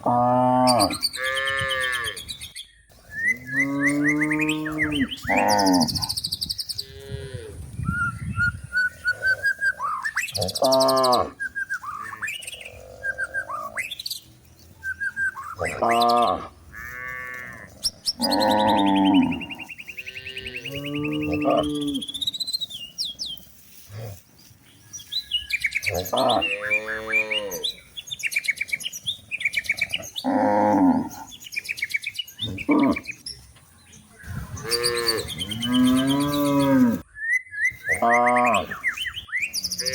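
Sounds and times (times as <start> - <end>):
cattle mooing: 0.0 - 2.2, 3.6 - 6.1, 10.4 - 11.4, 15.6 - 22.2, 25.9 - 27.8, 30.2 - 31.3, 34.5 - 37.0, 39.6 - 39.9
small birds chirping: 0.4 - 39.9.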